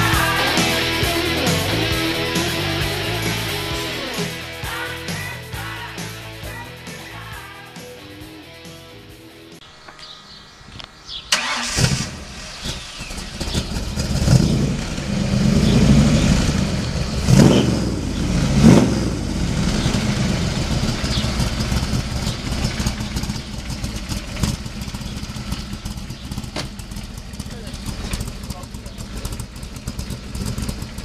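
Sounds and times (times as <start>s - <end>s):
car engine starting and revving: 0.0s - 9.0s, 9.7s - 31.0s
car engine idling: 0.0s - 31.0s.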